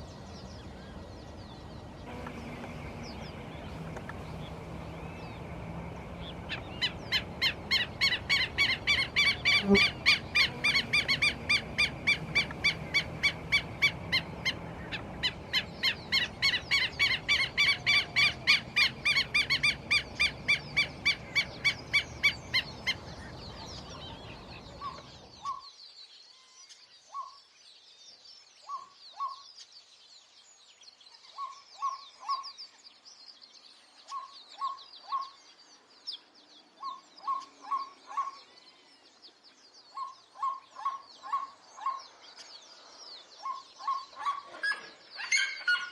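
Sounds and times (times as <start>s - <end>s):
faint high twittering: 0.0s - 25.6s
harsh repeated bird calls: 0.0s - 25.6s, 36.8s - 38.6s, 39.9s - 45.9s.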